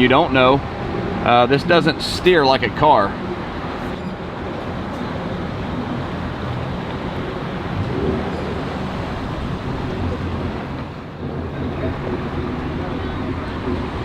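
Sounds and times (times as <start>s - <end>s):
engine rumble: 0.0s - 14.0s
wind noise: 0.0s - 14.0s.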